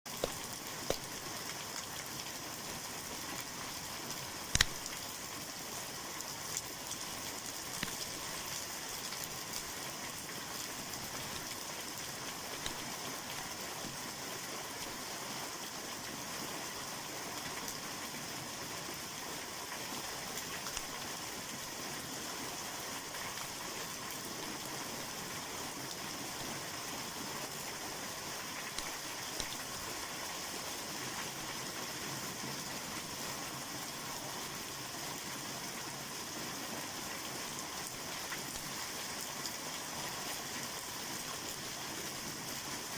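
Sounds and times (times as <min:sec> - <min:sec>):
fire crackling pops: 0:00.1 - 0:01.3, 0:04.4 - 0:05.1, 0:07.7 - 0:08.4, 0:12.6 - 0:13.0, 0:20.7 - 0:21.0, 0:28.6 - 0:29.8
wood fire hissing: 0:00.1 - 0:16.8, 0:18.6 - 0:31.6.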